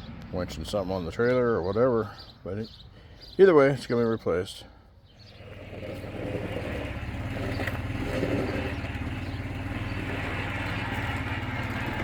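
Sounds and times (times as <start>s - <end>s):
vehicle engine running: 5.3s - 12.0s.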